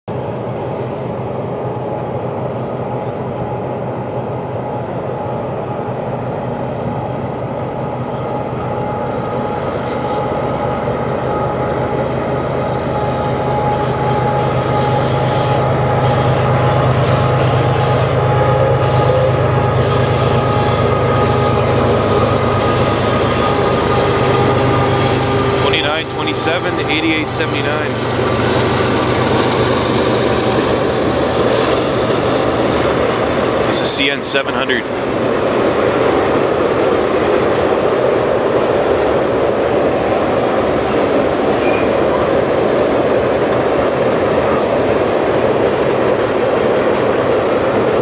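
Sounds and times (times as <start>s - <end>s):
diesel locomotive drone: 0.1s - 48.0s
high whining tones: 8.1s - 33.8s.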